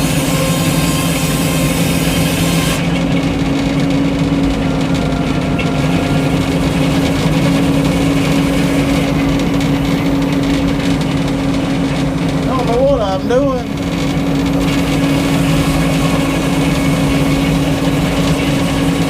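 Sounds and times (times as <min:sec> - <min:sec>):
sawmill engine running: 0:00.0 - 0:19.0.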